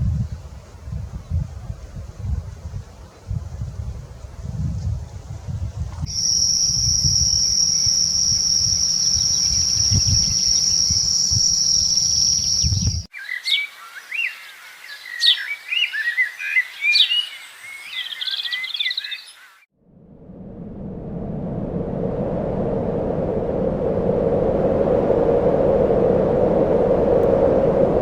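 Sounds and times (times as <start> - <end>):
wind buffeting microphone: 0.0 - 13.1, 20.0 - 28.0
high-pitched insect buzz: 6.1 - 13.1
small birds chirping: 6.1 - 19.6.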